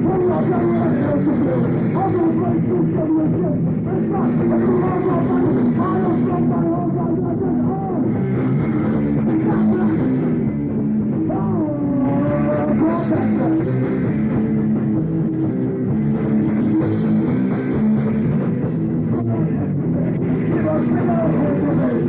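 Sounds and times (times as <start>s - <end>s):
rock band playing live: 0.0s - 22.0s.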